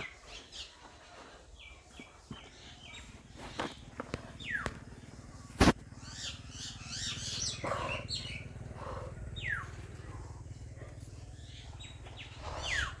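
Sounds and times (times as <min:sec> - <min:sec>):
birds chirping: 0:00.0 - 0:13.0
downward sweeping bird calls: 0:11.3 - 0:13.0.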